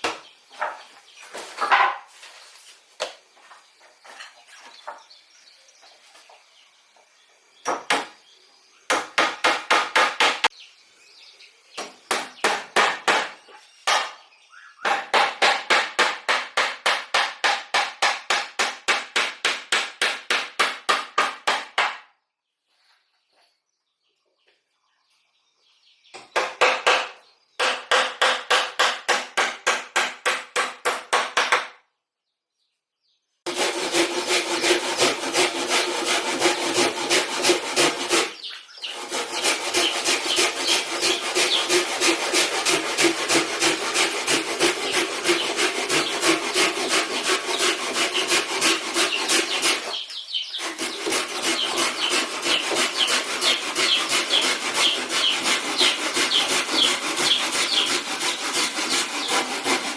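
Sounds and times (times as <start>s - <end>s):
hand saw cutting wood: 8.9s - 10.5s, 14.9s - 21.8s, 33.5s - 59.9s.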